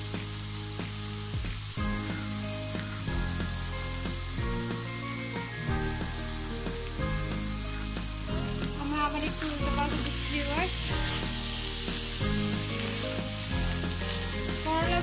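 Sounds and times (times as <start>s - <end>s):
background music: 0.0s - 15.0s
food sizzling in oil: 0.0s - 15.0s.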